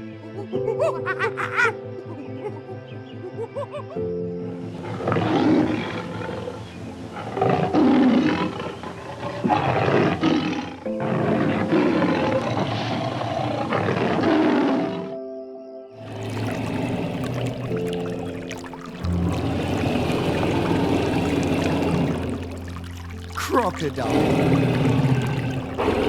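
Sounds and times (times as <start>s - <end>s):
background music with held notes: 0.0s - 13.2s, 14.4s - 26.0s
big cat roaring and growling: 7.2s - 15.2s, 18.5s - 26.0s.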